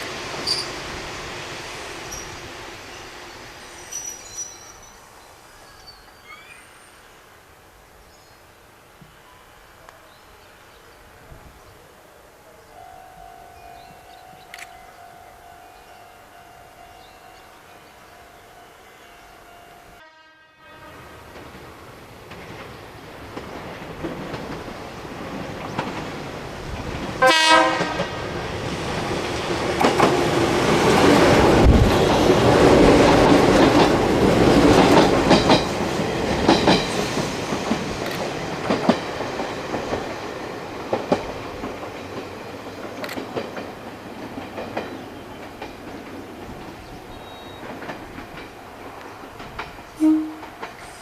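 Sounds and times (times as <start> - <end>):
train horn blast: 16.3 - 21.3, 27.2 - 28.2, 50.0 - 51.0
train wheels clacking: 21.3 - 51.0.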